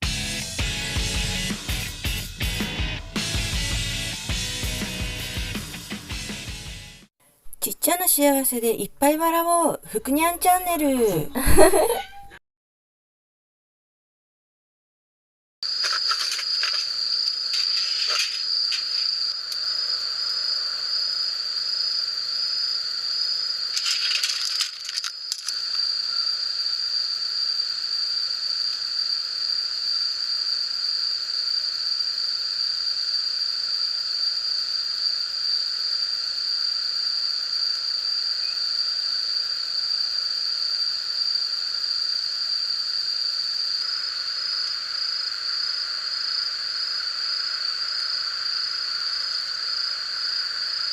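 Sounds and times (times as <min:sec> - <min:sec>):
crickets chirping: 0:07.8 - 0:12.0, 0:15.6 - 0:50.9
brief rustling: 0:15.8 - 0:19.2, 0:23.8 - 0:25.7.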